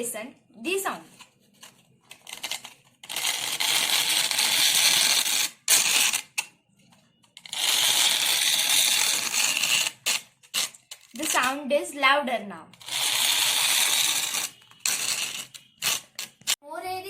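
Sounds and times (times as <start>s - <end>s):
needle scratching across sandpaper: 1.6s - 6.3s, 7.4s - 11.6s, 12.8s - 16.6s.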